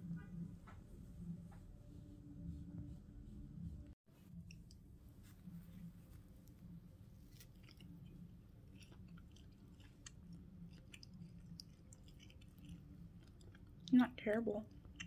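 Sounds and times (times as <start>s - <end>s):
low room hum: 0.0s - 15.0s
faint chewing of food: 4.2s - 15.0s.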